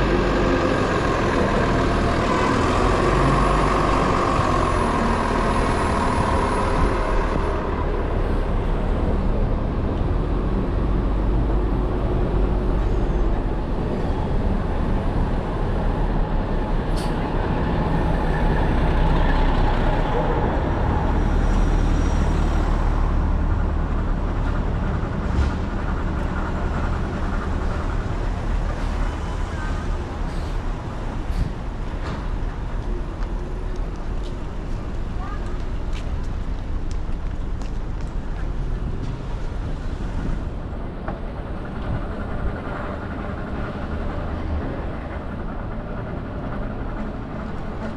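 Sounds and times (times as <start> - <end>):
rumble of passing vehicles: 0.0 - 47.9.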